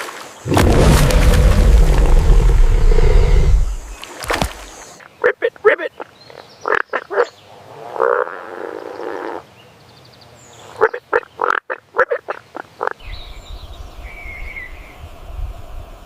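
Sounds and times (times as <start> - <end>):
low rumble: 0.5 - 4.0
frogs croaking: 3.2 - 9.5, 10.6 - 13.0.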